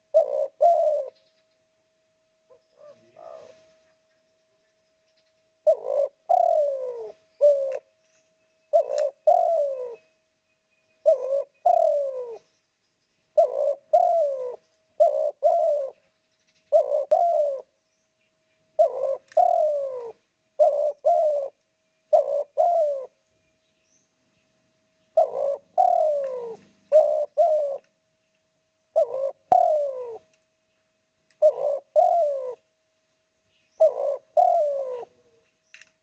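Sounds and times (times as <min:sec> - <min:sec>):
dove cooing: 0:00.0 - 0:01.3, 0:02.5 - 0:04.1, 0:05.6 - 0:07.9, 0:08.7 - 0:10.1, 0:11.0 - 0:12.5, 0:13.3 - 0:17.8, 0:18.8 - 0:23.2, 0:25.1 - 0:27.9, 0:28.9 - 0:30.3, 0:31.4 - 0:32.6, 0:33.7 - 0:35.4.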